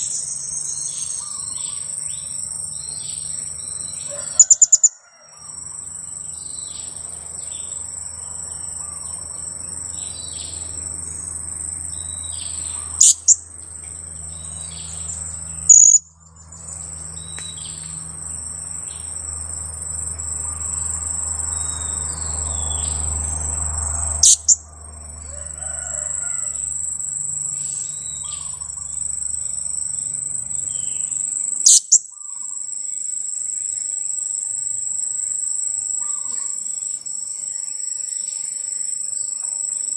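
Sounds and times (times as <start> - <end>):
high insect drone: 0.0 - 39.9
parrot chick calls: 4.1 - 5.0, 12.7 - 13.4, 15.7 - 16.1, 24.2 - 24.6
faint chirps: 11.9 - 19.2, 24.2 - 24.7, 27.4 - 34.4.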